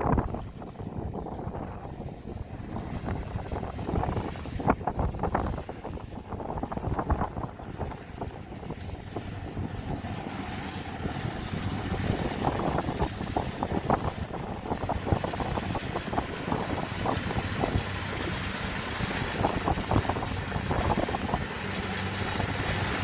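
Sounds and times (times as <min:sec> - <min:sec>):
combine harvester diesel engine: 0:00.0 - 0:23.0
wind buffeting microphone: 0:00.0 - 0:23.0
crackling rustle: 0:03.0 - 0:23.0.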